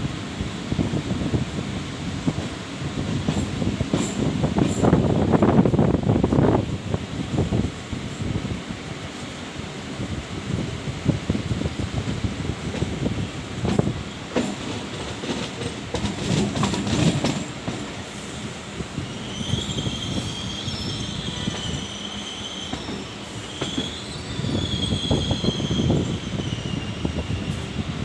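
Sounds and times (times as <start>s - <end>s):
train rumbling on rails: 0.0s - 28.0s
wheel squeal: 19.0s - 27.9s.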